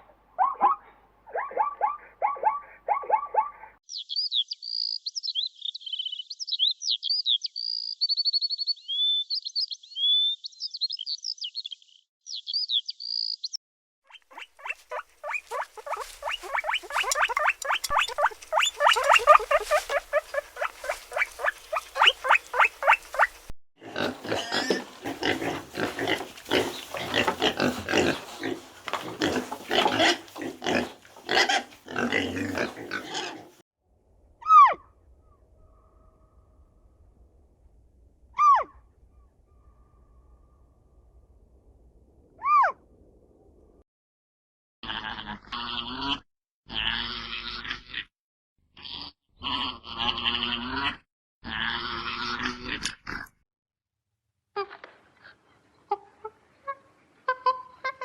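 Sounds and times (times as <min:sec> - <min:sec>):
animal chirps and squeaks: 0:14.1 - 0:23.5, 0:24.4 - 0:33.6
rapid harsh animal calls: 0:14.1 - 0:33.6.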